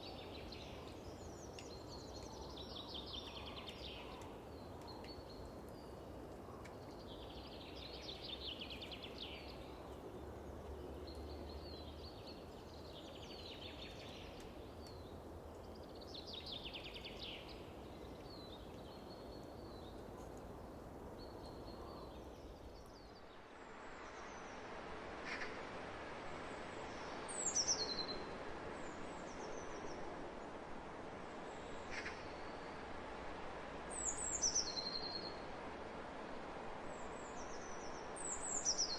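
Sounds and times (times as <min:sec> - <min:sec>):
songbird singing: 0:00.0 - 0:23.4, 0:33.9 - 0:35.5, 0:37.0 - 0:38.9
wind hissing across fields: 0:00.0 - 0:38.9.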